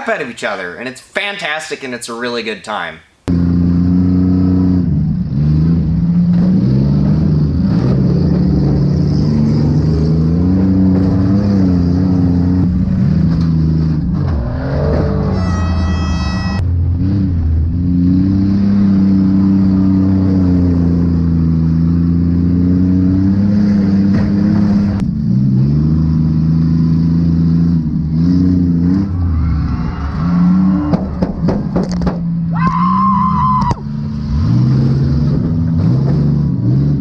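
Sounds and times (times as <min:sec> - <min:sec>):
car engines revving: 0:03.2 - 0:32.6, 0:33.6 - 0:37.0
high-pitched squeal: 0:14.4 - 0:16.6
sharp knocks: 0:30.9 - 0:32.3.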